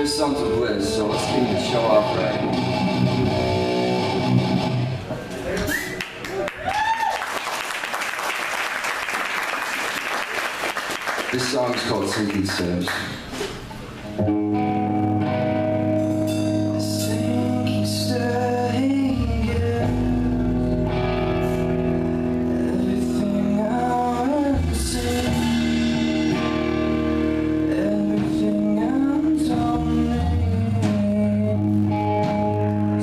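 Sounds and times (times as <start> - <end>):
bass line: 0.0 - 5.1, 14.2 - 33.0
amplified guitar: 0.0 - 6.0, 14.0 - 33.0
person singing: 16.6 - 21.2, 22.4 - 26.7, 27.5 - 33.0
drums with cymbal crashes: 25.0 - 28.4.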